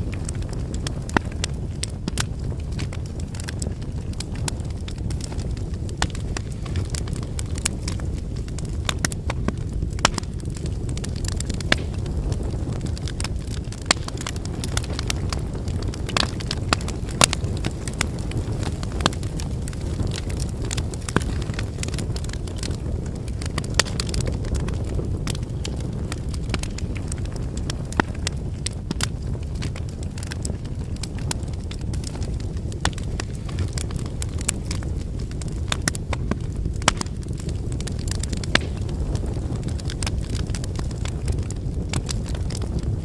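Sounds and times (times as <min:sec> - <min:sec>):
burning wood crackling and popping: 0:00.0 - 0:43.0
flames rumbling: 0:00.0 - 0:43.0.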